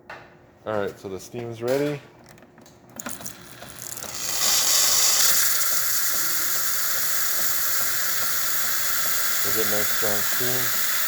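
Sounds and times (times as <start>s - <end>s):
steam wand hissing: 3.3s - 11.0s.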